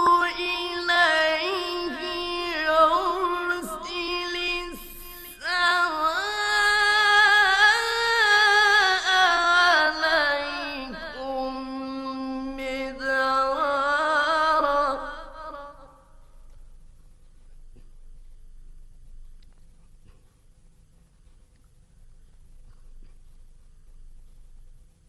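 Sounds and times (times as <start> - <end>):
man chanting melodically: 0.0 - 16.4.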